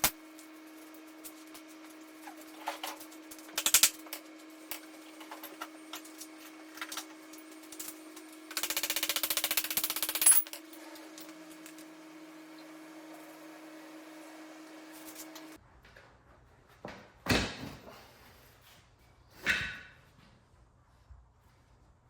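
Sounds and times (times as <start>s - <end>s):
metal tools clinking: 9.8s - 11.2s.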